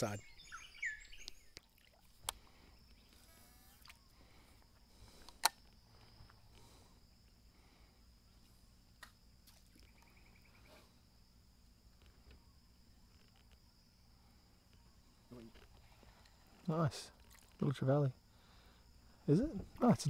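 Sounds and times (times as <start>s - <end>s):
faint chirps: 0.0s - 8.6s, 9.7s - 11.3s
high insect drone: 0.0s - 20.0s.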